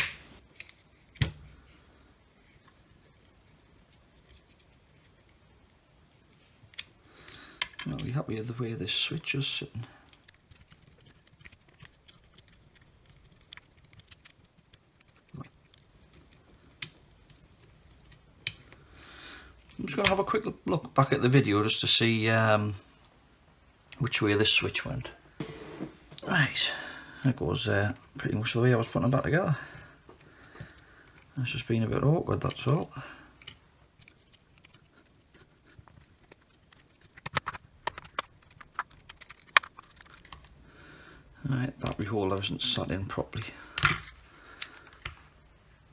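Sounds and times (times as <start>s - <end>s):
clicks and taps of plastic parts: 6.7s - 8.1s, 10.1s - 18.8s, 33.4s - 40.5s.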